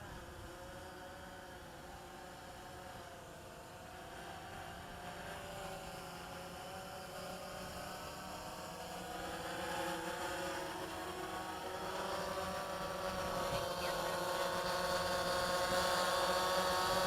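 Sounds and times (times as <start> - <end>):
drone propellers whining: 3.6 - 17.0.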